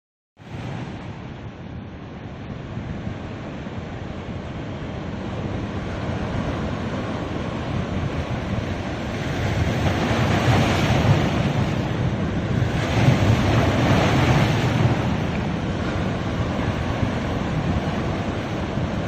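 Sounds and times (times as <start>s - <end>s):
sea waves breaking: 0.4s - 19.0s.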